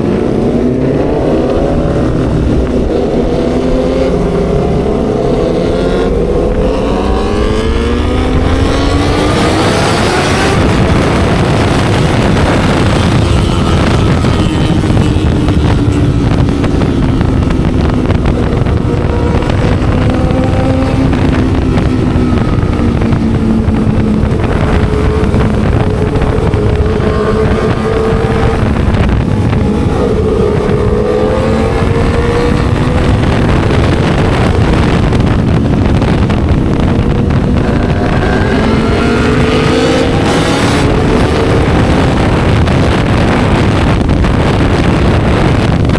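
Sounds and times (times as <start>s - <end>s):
motorcycle engine revving: 0.0s - 45.9s
wind buffeting microphone: 0.0s - 45.9s.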